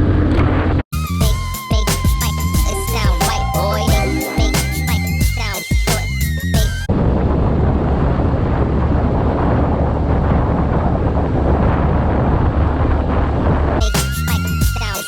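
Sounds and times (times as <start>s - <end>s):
hip hop music: 1.0s - 6.9s, 13.8s - 15.0s
wind rushing over microphone: 6.9s - 14.5s.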